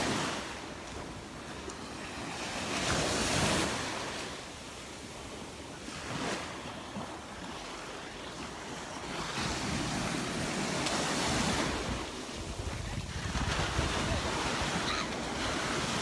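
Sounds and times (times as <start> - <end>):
surf breaking on a beach: 0.0 - 16.0
wind buffeting the microphone: 9.4 - 16.0.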